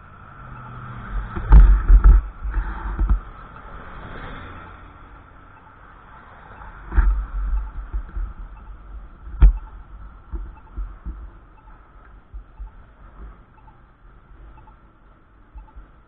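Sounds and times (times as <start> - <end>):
wind gusting on microphone: 0.9 - 4.6, 6.3 - 13.6.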